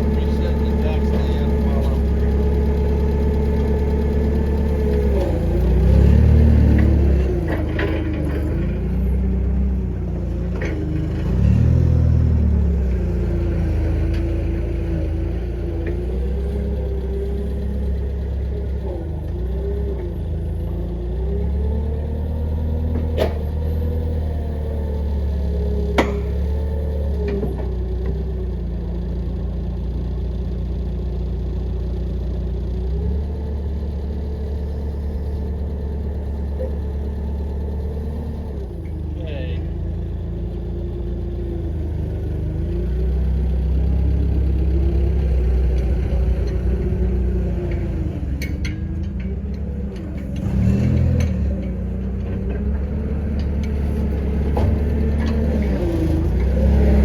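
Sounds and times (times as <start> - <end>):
engine idling: 0.0 - 57.0
sharp metallic knocks: 26.0 - 26.4.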